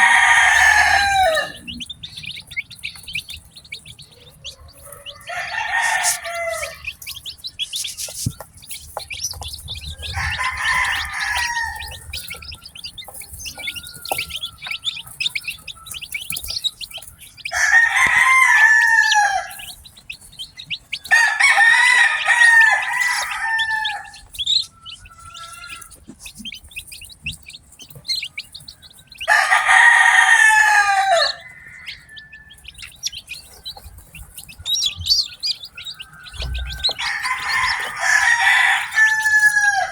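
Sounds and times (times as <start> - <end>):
rooster crowing: 0.0 - 2.2, 4.5 - 7.4, 9.4 - 19.8, 21.0 - 26.0, 28.9 - 39.9
chicks peeping: 0.0 - 39.9.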